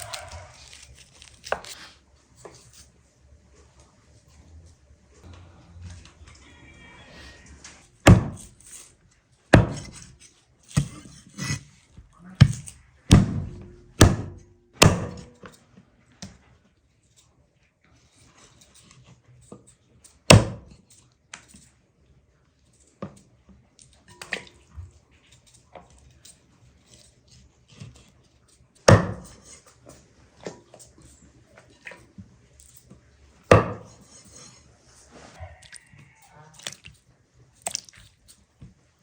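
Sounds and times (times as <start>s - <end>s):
loud knocks from cooking: 8.0s - 8.4s, 9.6s - 10.0s, 12.4s - 15.3s, 28.9s - 29.4s, 33.5s - 34.0s.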